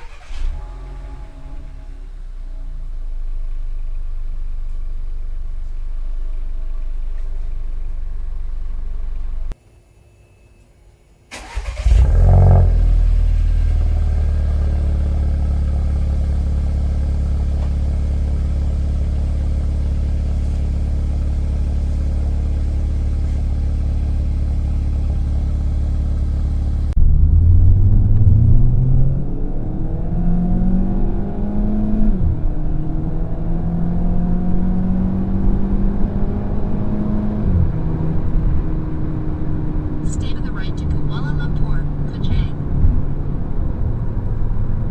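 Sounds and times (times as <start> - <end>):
car engine starting and idling: 0.0 - 9.6, 10.7 - 30.1
car accelerating hard: 11.3 - 20.6, 21.2 - 40.1.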